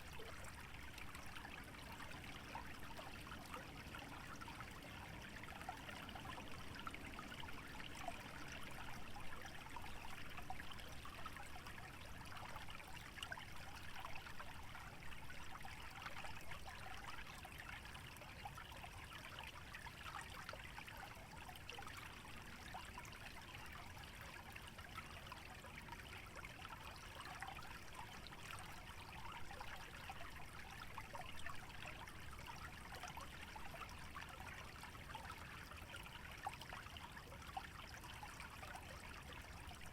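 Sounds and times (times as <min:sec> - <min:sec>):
small stream trickling: 0:00.0 - 0:39.9.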